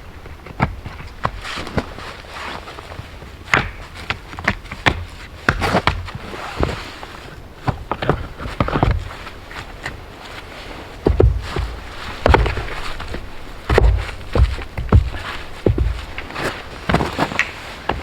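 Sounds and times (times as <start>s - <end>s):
scraping: 7.9s - 18.0s
knocks and thuds: 11.0s - 18.0s.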